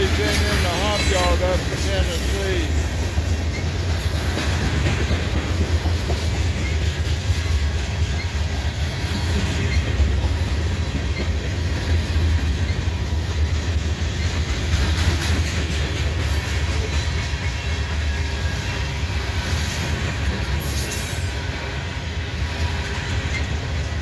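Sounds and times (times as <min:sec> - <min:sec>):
train wheels rolling on rails: 0:00.0 - 0:24.0.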